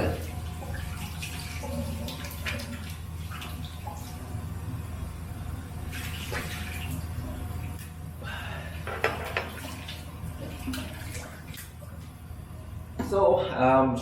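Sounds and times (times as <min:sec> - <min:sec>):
tap water splashing in sink: 0:00.0 - 0:04.0, 0:08.9 - 0:11.8.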